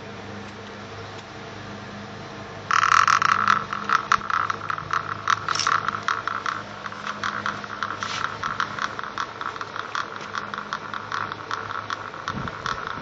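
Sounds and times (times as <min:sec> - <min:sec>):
loud electrical crackling: 0:02.7 - 0:13.0.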